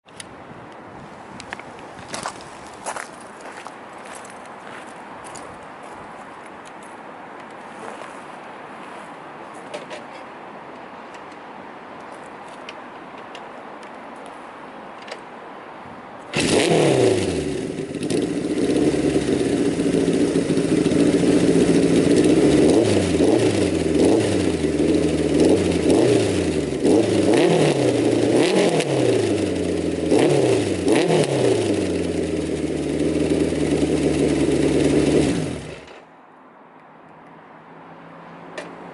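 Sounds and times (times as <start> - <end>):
motorcycle engine revving: 16.3 - 36.0.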